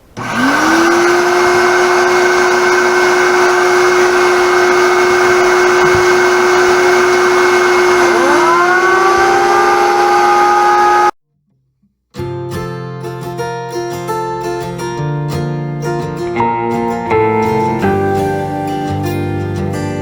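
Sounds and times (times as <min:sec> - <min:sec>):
jointer motor spinning up: 0:00.0 - 0:11.2
shop vacuum whining: 0:00.0 - 0:11.2.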